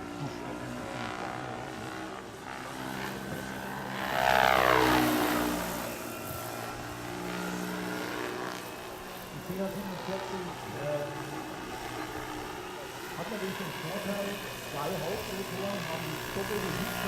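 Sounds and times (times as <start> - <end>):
model helicopter motor whine: 0.0 - 17.0.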